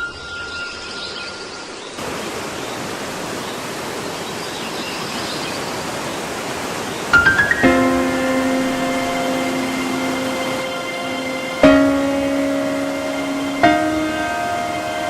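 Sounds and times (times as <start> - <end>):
whitewater river rushing: 2.0 - 15.0
music: 7.2 - 15.0.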